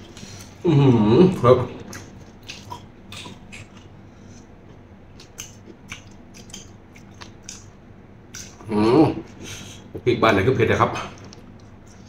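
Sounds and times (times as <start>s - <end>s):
wet chewing mouth sounds: 1.8s - 7.7s.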